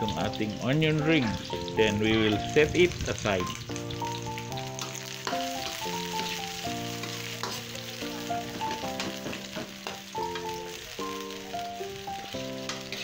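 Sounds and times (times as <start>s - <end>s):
background music: 0.0s - 13.0s
onion rings sizzling in oil: 0.0s - 13.0s
metal spoon scraping a pan: 4.8s - 8.0s, 12.6s - 13.0s.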